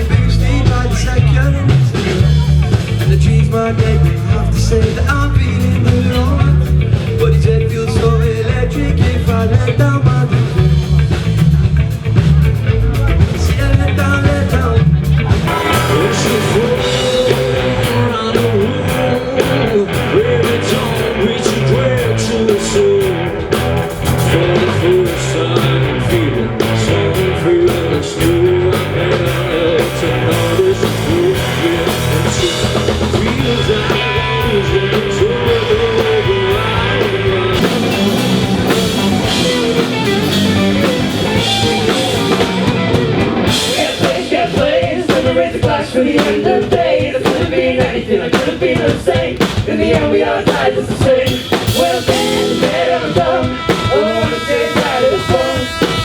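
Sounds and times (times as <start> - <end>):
rock music with guitar and drums: 0.0 - 56.0.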